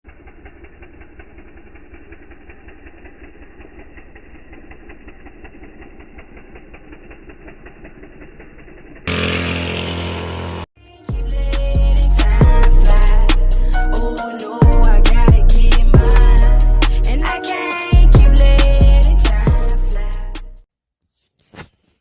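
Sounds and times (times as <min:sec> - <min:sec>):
dirt bike engine running: 0:00.0 - 0:20.6
loud music: 0:10.8 - 0:20.6.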